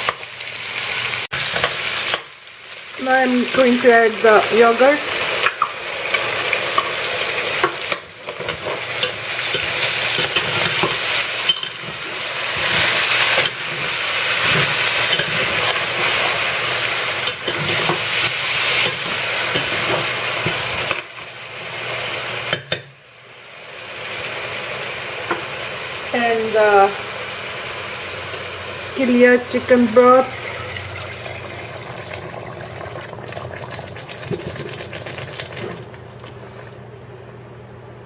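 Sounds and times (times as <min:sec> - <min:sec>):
chicken sizzling in hot oil: 0:00.0 - 0:36.0
spoon scraping a pot: 0:06.1 - 0:16.4.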